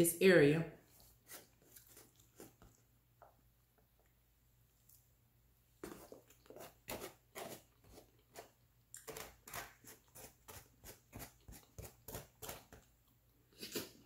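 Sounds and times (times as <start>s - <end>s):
fork in foam container: 5.8s - 12.8s.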